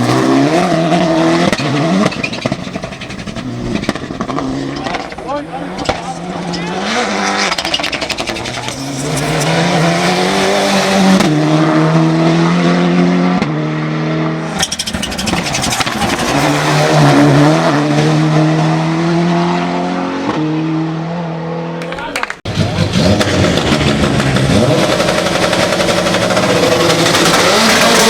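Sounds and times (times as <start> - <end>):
engine at full throttle: 0.0 - 21.8, 22.5 - 28.0
sharp exhaust pops: 0.9 - 6.2, 7.3 - 10.1.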